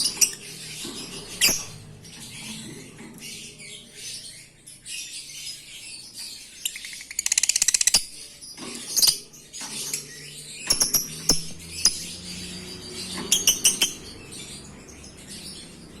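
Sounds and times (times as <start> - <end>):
birds chirping: 0.0 - 16.0
bird rattling trill: 10.6 - 12.0.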